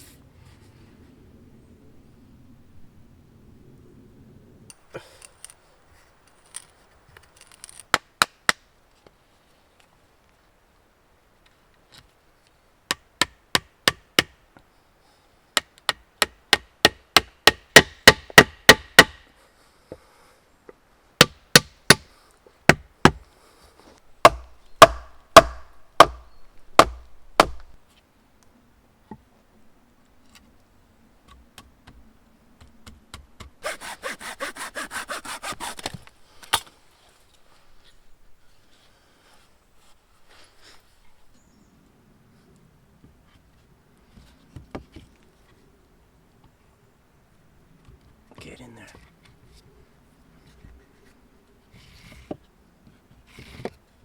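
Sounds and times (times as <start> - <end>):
hand saw cutting wood: 33.6 - 36.1.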